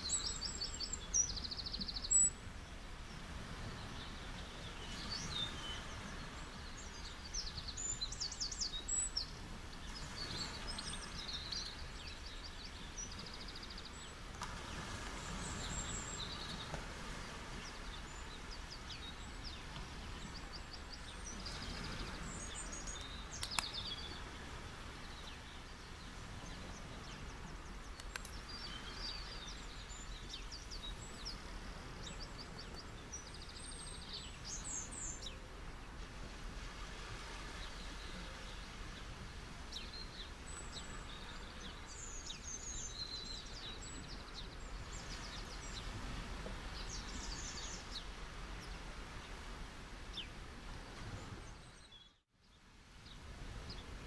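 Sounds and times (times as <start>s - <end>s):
small birds chirping: 0.0s - 16.8s, 17.5s - 35.9s, 37.5s - 50.4s
ocean surf on a beach: 0.0s - 51.9s, 52.5s - 54.0s
sharp tick: 23.0s - 23.8s, 28.0s - 28.4s.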